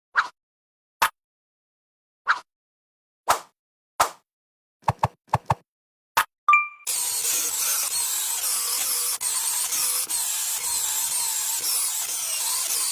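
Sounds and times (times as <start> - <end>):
short high ding: 6.5 - 6.9
woodworking tool cutting wood: 6.9 - 12.9.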